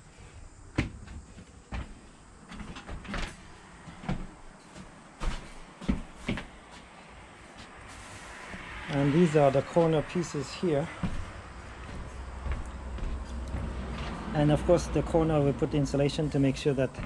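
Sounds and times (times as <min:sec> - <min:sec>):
light knocks and thuds: 0:00.7 - 0:06.5.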